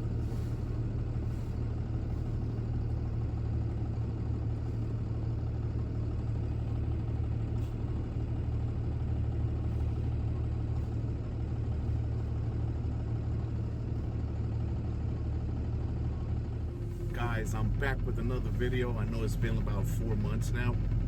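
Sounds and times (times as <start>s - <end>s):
truck engine rumbling: 0.0s - 21.0s.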